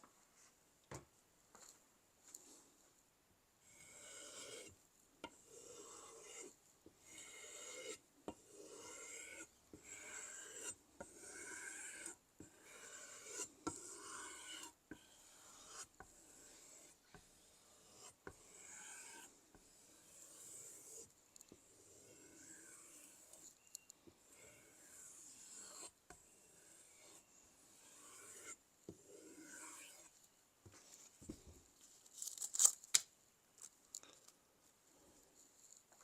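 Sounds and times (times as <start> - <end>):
knife scraping sharpening stone: 3.7 - 21.1, 21.7 - 30.1.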